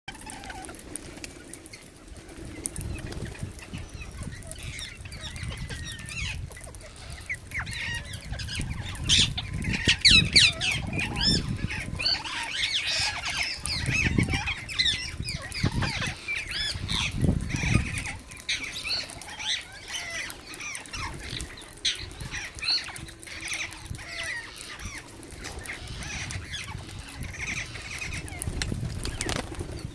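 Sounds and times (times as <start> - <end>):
parrots chirping and squawking: 0.1 - 29.9.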